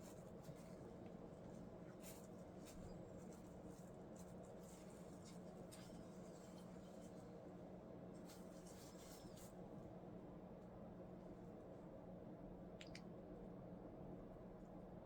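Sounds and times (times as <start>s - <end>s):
faint scratches and light clicks: 0.0s - 7.4s, 8.1s - 9.6s.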